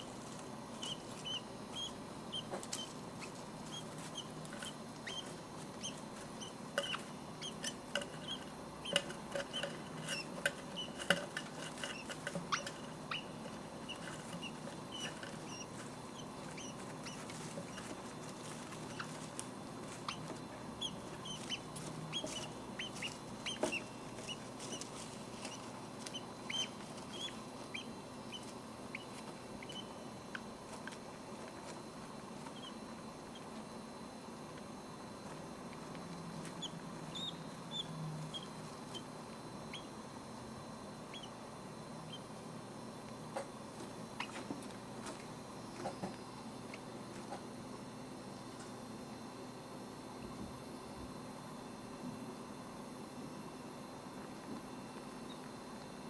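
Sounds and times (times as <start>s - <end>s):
small clicks and scratches: 0.0s - 33.7s
bird chicks cheeping: 0.8s - 4.3s, 11.9s - 17.9s, 20.0s - 24.8s, 25.5s - 30.0s, 36.6s - 39.1s, 39.7s - 39.9s, 41.1s - 41.4s.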